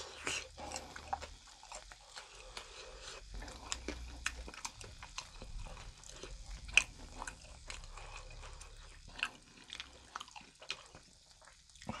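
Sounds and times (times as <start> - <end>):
mouth clicks and crunches: 0.0 - 12.0
person chewing food: 0.0 - 12.0.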